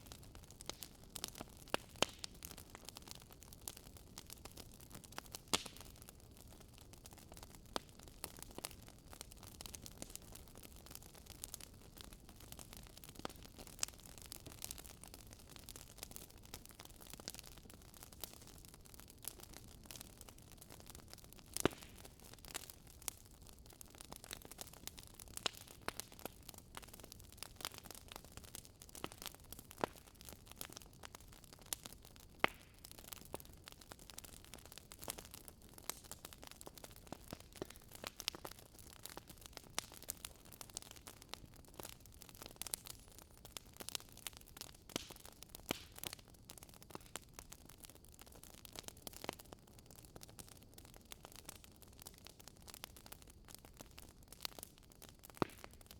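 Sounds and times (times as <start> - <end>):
wood crackling and popping: 0.0 - 55.9.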